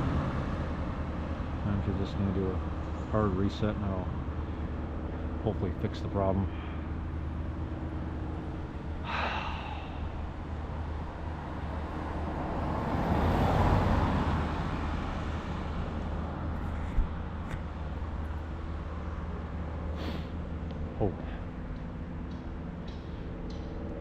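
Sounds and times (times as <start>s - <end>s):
steady low hum: 0.0s - 13.4s, 14.4s - 24.0s
vehicle passing by: 6.9s - 24.0s
person sighing: 9.0s - 10.1s.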